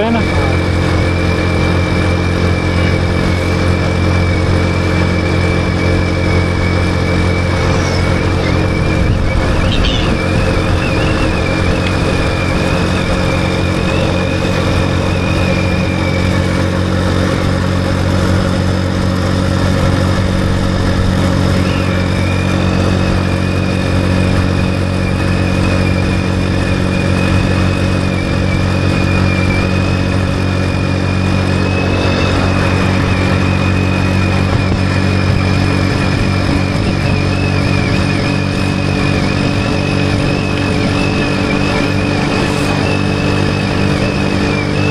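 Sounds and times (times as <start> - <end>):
motorcycle engine running: 0.0 - 44.9
wavering high tone: 29.3 - 37.2.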